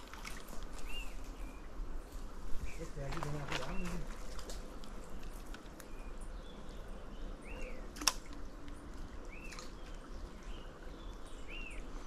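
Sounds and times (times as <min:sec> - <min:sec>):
bird calling: 0:05.0 - 0:12.0.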